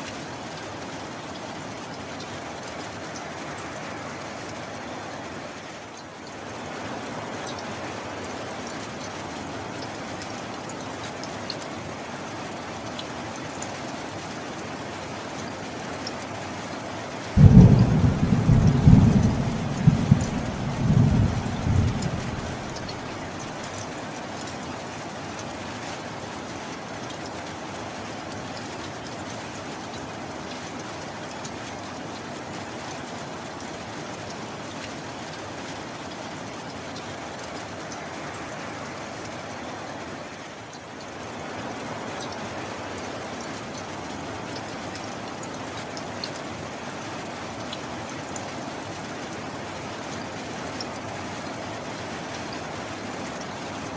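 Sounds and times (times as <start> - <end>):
steady rain: 0.0 - 53.9
heavy rain hissing: 17.3 - 24.3
thunder clap and rumble: 17.4 - 23.7
single raindrops ticking: 17.4 - 24.6.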